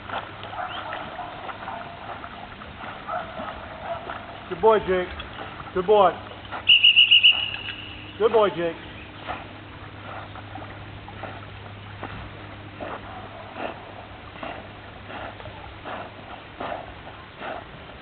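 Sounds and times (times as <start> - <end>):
low hum: 0.0 - 18.0
dog panting: 9.2 - 11.6, 12.7 - 18.0.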